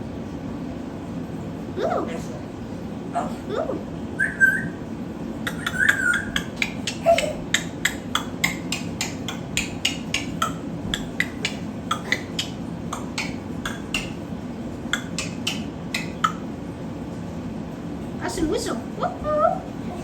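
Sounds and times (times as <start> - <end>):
steady low hum: 0.0 - 20.0
pet bird chirping: 4.0 - 16.6
bird whistled note: 4.2 - 4.8.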